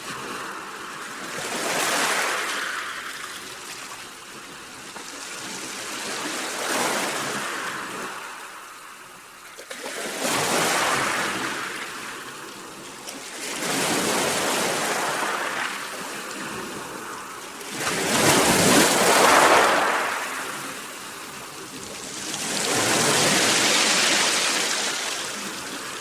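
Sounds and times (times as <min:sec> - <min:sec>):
sea waves washing in: 0:09.8 - 0:26.0.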